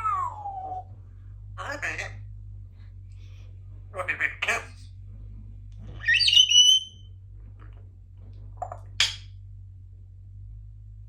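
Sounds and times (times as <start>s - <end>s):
parrot squawk: 0.0s - 0.9s, 1.6s - 2.2s, 4.0s - 4.8s, 6.0s - 7.0s
parrot whistling: 6.0s - 7.1s.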